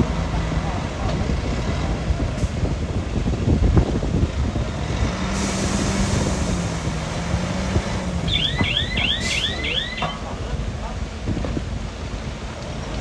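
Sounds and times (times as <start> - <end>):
diesel machinery rumbling: 0.0 - 13.0
hiss: 5.3 - 8.4
high chirps: 8.0 - 10.3.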